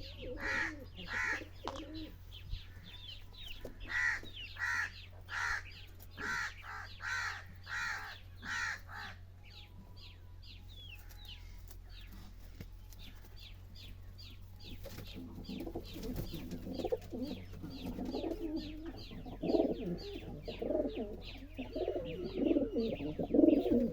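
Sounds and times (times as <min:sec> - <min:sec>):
loud harsh bird calls: 0:00.0 - 0:02.1, 0:03.7 - 0:09.3
pigeons cooing: 0:00.0 - 0:09.2, 0:14.6 - 0:23.9.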